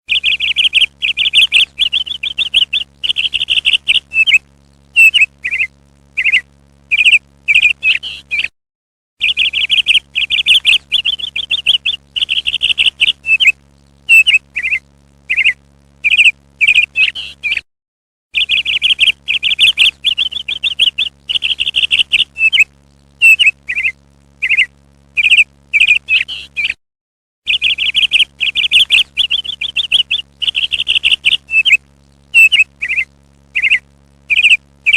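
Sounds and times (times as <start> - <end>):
parrot harsh chattering: 32.4 - 33.0, 33.6 - 34.9.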